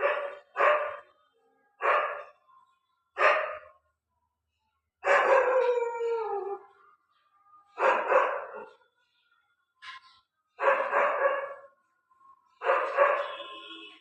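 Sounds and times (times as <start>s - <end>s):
dog barking: 0.0s - 1.2s, 1.8s - 2.4s, 3.2s - 3.8s, 5.0s - 5.6s, 7.8s - 8.8s, 10.6s - 11.8s, 12.6s - 13.6s.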